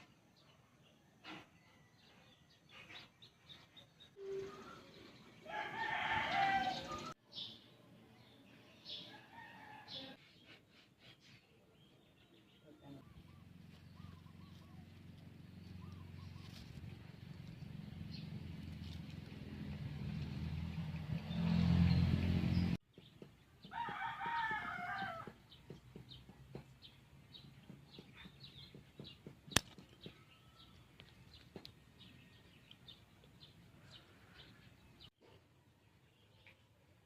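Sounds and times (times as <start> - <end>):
rooster crowing: 5.4 - 7.1, 23.7 - 25.4.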